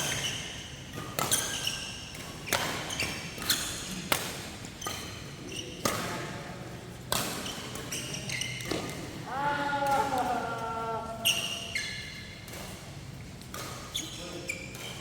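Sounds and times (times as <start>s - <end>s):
shoe squeaks: 0.0s - 4.0s, 4.8s - 5.8s, 7.4s - 8.8s, 11.2s - 12.4s, 13.8s - 15.0s
rackets hitting shuttlecock: 0.0s - 6.3s, 7.0s - 10.6s, 12.3s - 15.0s.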